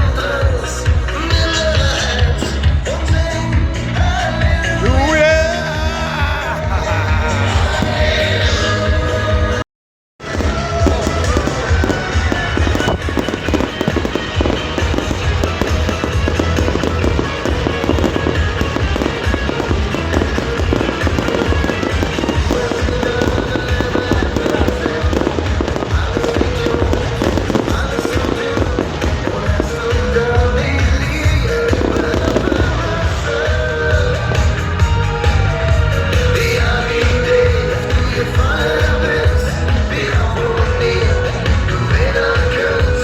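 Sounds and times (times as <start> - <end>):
fireworks bangs and crackles: 0.0 - 3.6, 7.6 - 8.8, 10.2 - 35.0
carnival songs: 0.0 - 9.6, 10.2 - 43.0.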